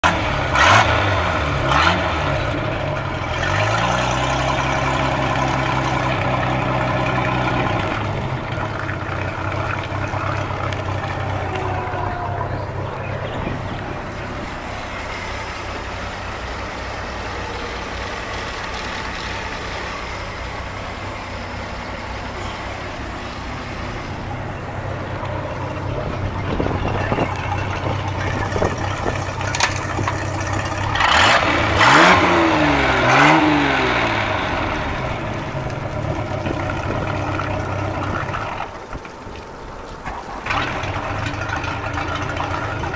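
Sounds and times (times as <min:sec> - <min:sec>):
boat engine idling and revving: 0:00.0 - 0:42.9.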